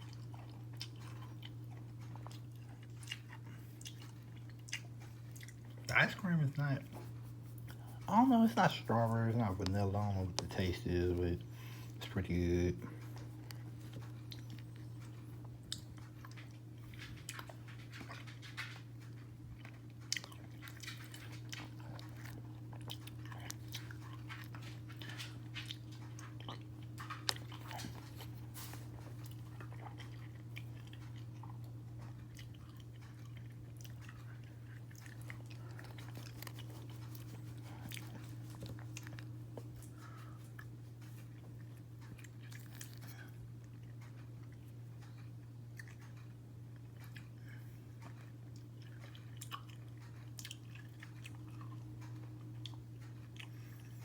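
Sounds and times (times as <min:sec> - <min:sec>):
chewing and crunching: 0:00.0 - 0:54.0
steady low hum: 0:00.0 - 0:54.0.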